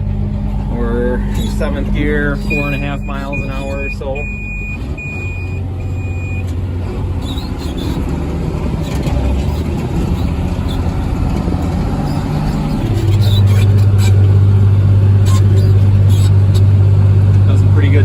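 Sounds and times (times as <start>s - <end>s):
tractor engine running: 0.0s - 18.0s
short high beeps: 1.0s - 6.4s.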